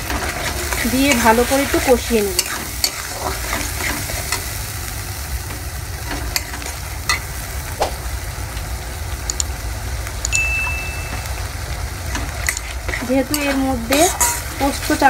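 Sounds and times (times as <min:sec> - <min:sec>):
metal spatula scraping a pan: 0:00.0 - 0:04.5, 0:12.1 - 0:15.0
spice paste sizzling in hot oil: 0:00.0 - 0:15.0.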